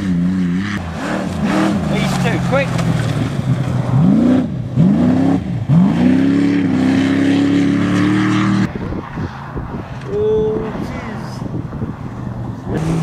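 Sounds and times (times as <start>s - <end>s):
distant engine: 0.0s - 13.0s
rally car engine revving: 0.0s - 13.0s.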